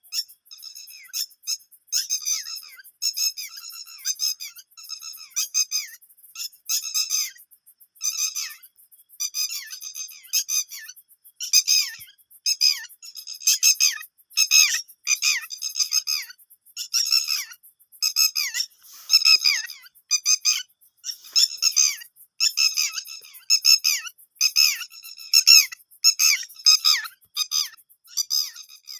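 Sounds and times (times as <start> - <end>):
bird chicks calling: 0.0 - 28.9.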